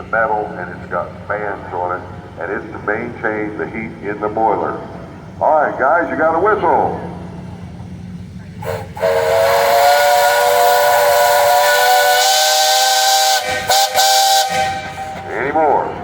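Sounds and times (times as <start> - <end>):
steam hissing: 7.5 - 16.0
steam whistle blasts: 8.6 - 15.3.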